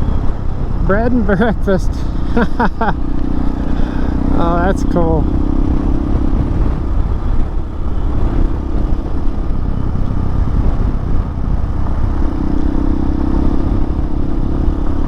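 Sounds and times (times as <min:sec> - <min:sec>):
motorcycle engine running: 0:00.0 - 0:15.0
wind rumble on microphone: 0:00.0 - 0:15.0.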